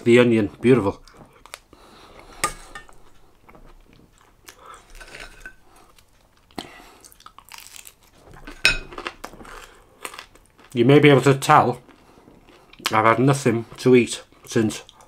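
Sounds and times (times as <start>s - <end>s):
man chewing food: 0.9s - 10.8s, 11.8s - 13.0s.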